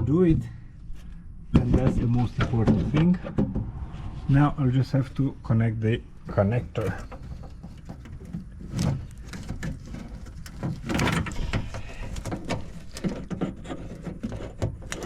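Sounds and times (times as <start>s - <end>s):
rustling: 6.0s - 15.0s
light knocks of plastic and metal: 6.7s - 15.0s.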